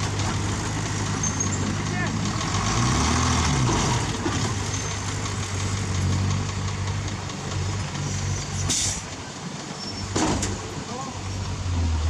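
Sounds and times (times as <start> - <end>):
heavy diesel engine running: 0.0 - 12.0
sharp hiss or clatter: 8.5 - 9.1.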